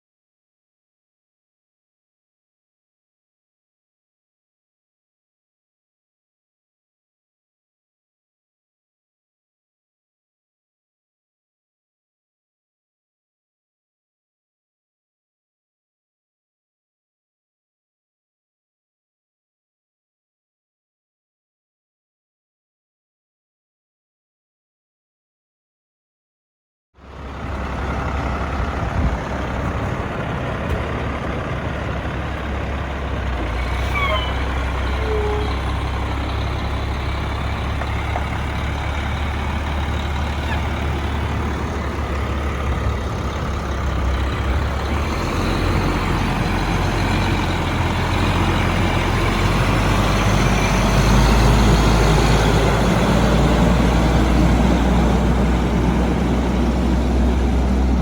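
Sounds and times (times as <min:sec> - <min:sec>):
garbage truck diesel engine running: 0:27.0 - 0:58.0
brief squeaks: 0:33.4 - 0:36.0, 0:40.4 - 0:40.8.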